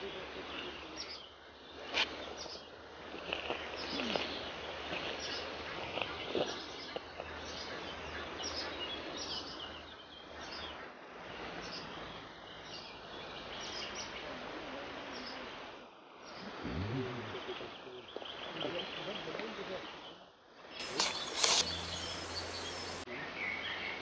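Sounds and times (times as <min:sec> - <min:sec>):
steady background hiss: 0:11.0 - 0:23.1
songbirds chirping and singing: 0:20.0 - 0:24.0.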